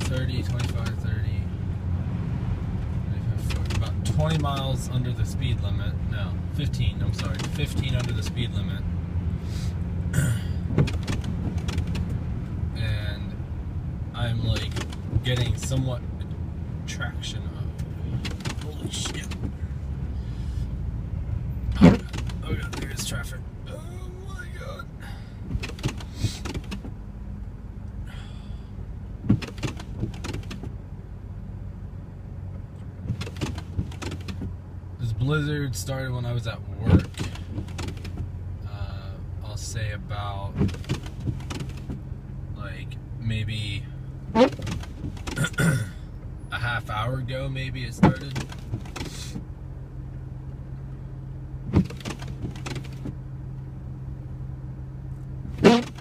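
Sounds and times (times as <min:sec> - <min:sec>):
car engine and tyres rumbling: 0:00.0 - 0:56.0
knocks and rattles: 0:10.6 - 0:12.2, 0:18.1 - 0:19.6.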